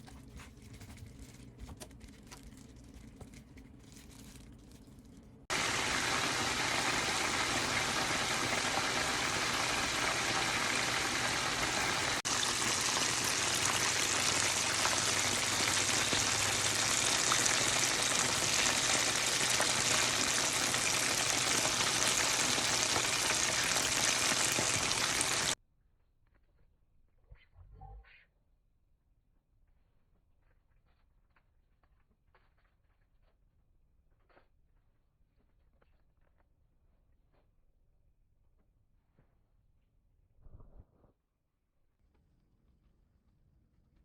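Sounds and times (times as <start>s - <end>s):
chicken sizzling in hot oil: 5.5s - 25.6s.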